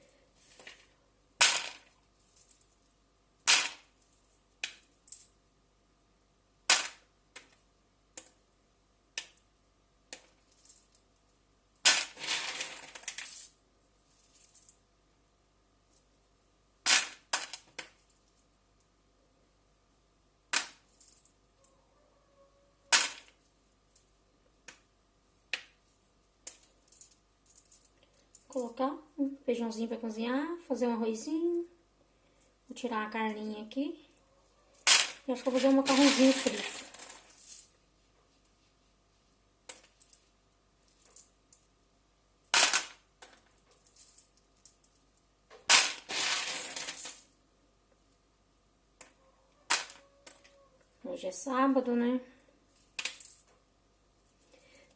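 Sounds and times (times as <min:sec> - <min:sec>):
scraping or rustling: 0:34.4 - 0:39.3, 0:45.7 - 0:47.3.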